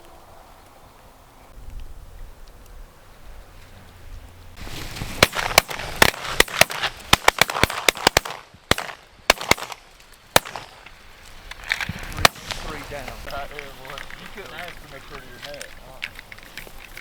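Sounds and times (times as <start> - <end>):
shotgun blasts: 5.1 - 10.9, 12.1 - 13.0.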